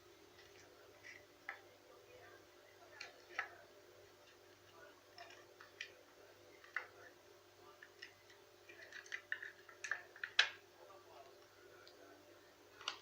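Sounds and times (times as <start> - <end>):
low steady hum: 0.0 - 13.0
faint irregular clicks and taps: 6.6 - 7.0, 7.8 - 10.6, 12.8 - 13.0.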